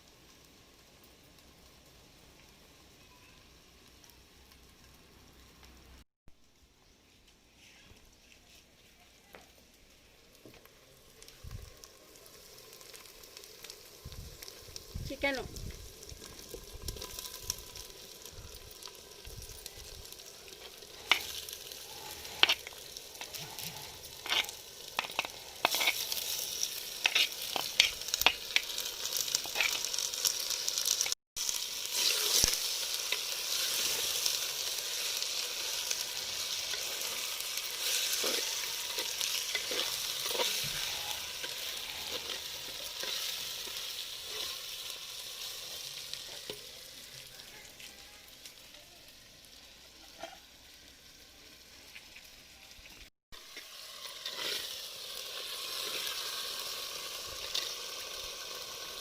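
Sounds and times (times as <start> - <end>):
chicken sizzling in hot oil: 0.0 - 7.0, 7.6 - 59.0
spoon scraping and knocking pan: 22.1 - 23.4, 24.2 - 26.3, 27.0 - 28.7.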